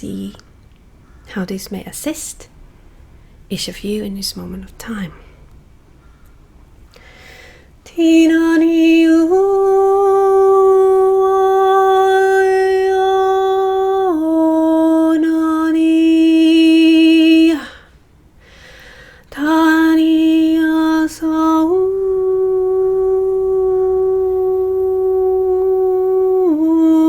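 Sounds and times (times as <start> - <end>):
breath: 6.0 - 7.7, 17.8 - 19.3
woman singing long held notes: 7.8 - 18.0, 19.2 - 27.0.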